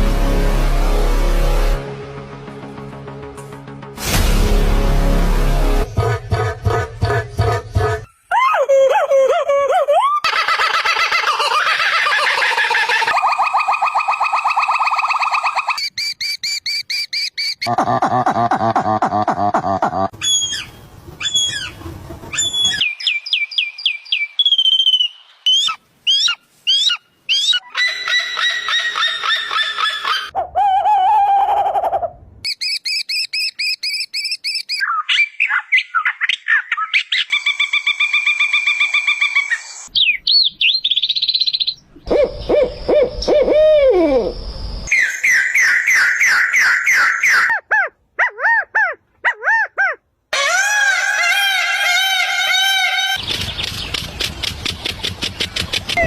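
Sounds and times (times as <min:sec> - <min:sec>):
bird calls: 0:20.2 - 0:47.8.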